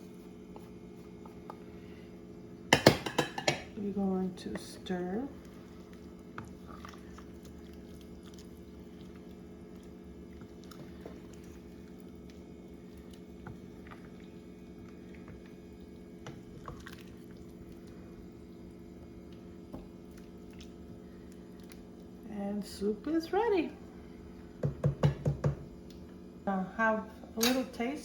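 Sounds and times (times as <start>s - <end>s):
steady low hum: 0.0s - 28.0s
wet squishing of soup: 5.2s - 22.3s.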